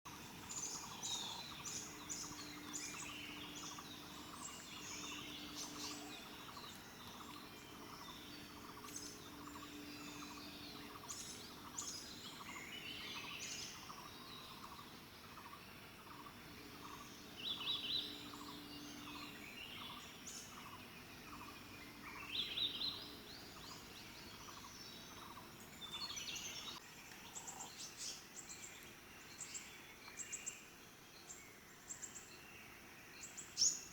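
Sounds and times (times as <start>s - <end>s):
wild birds chirping: 0.1s - 33.9s.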